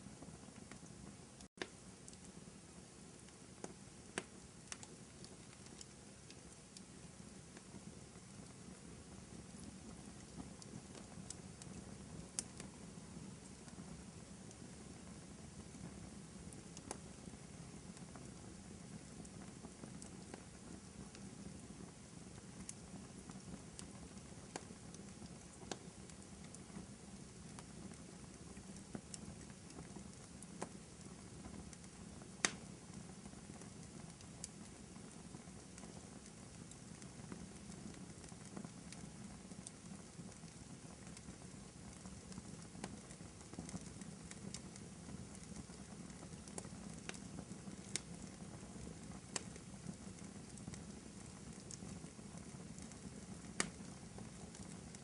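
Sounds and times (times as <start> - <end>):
wood fire crackling: 0.0 - 55.0
sharp fire pops: 3.2 - 6.8, 31.4 - 32.8.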